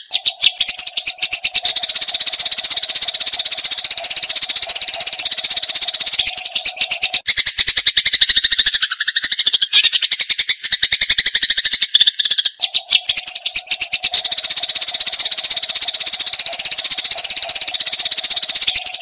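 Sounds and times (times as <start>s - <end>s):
sparrows chattering: 0.0s - 19.0s.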